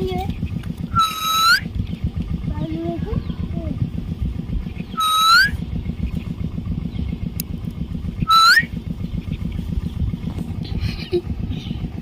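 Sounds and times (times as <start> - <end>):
steady low rumble: 0.0 - 12.0
myna whistled calls: 0.9 - 1.7, 4.6 - 5.6, 8.2 - 9.4.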